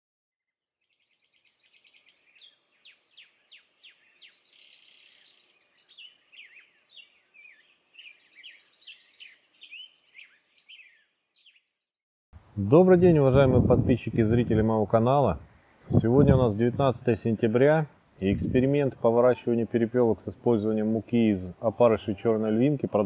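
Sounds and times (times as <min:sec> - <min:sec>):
songbird chirps and trills: 0:00.8 - 0:11.9.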